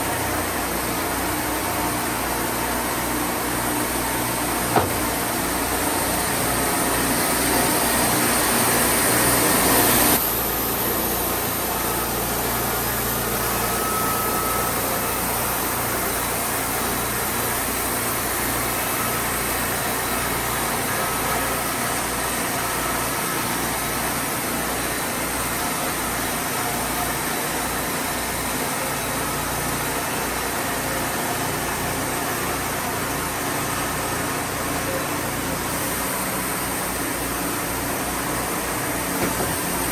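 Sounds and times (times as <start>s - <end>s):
portable sawmill running: 0.0s - 39.9s.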